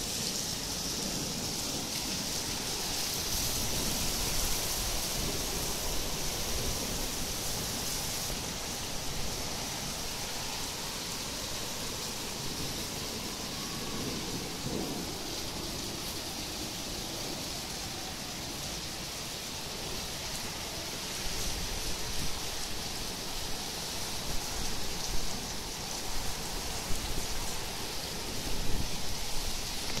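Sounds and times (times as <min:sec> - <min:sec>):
heavy rain hiss: 0:00.0 - 0:30.0.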